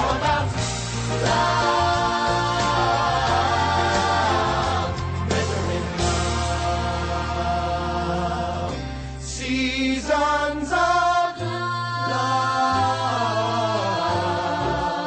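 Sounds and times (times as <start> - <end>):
held bass notes: 0.0 - 11.0
choir-like singing: 0.0 - 15.0.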